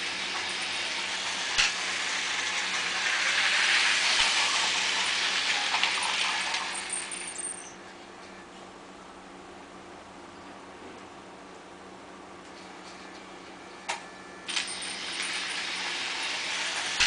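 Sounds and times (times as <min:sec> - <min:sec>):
toy train rattling on plastic track: 0:00.0 - 0:07.6, 0:14.5 - 0:17.0.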